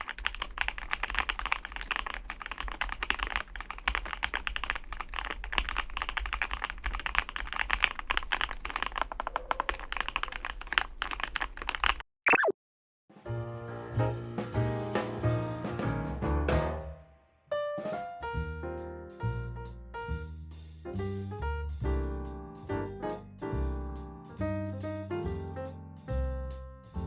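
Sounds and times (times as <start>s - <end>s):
fast typing on mechanical keyboard: 0.0s - 12.0s.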